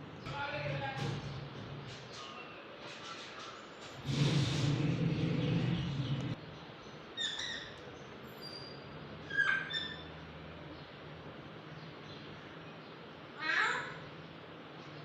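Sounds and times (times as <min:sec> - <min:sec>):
parakeet high calls: 0:07.2 - 0:07.8, 0:08.5 - 0:10.1.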